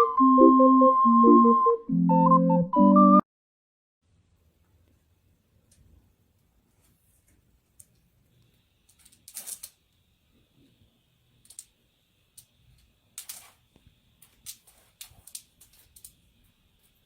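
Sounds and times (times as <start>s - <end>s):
scratchy rustles: 14.6s - 16.0s.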